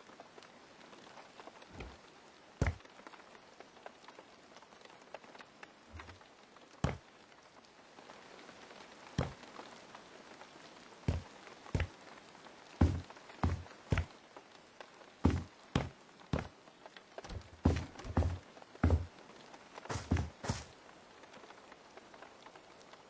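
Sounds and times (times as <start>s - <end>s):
light rain pattering: 0.0s - 23.0s
soft thuds: 1.7s - 2.0s, 5.9s - 6.2s, 9.2s - 9.4s, 11.1s - 12.0s, 12.8s - 14.1s, 15.3s - 16.5s, 17.2s - 19.1s, 19.9s - 20.7s.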